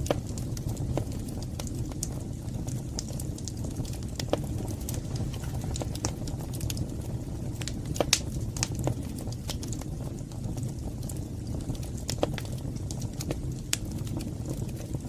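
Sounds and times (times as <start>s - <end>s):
fire crackling and popping: 0.0s - 15.0s
low rumble of flames: 0.0s - 15.0s.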